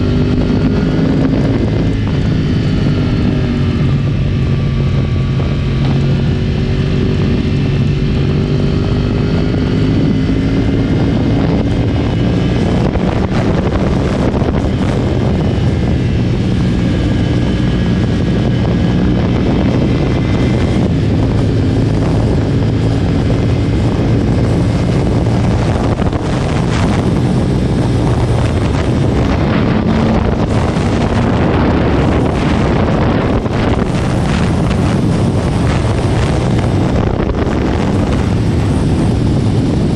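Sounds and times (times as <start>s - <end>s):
motorcycle engine running: 0.0s - 39.9s
steady rushing noise: 0.0s - 39.9s.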